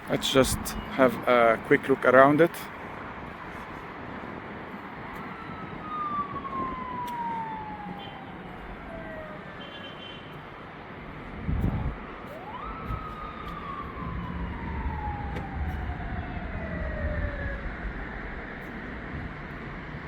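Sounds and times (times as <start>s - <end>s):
street noise: 0.0s - 20.0s
siren wailing: 5.0s - 10.4s, 11.7s - 20.0s.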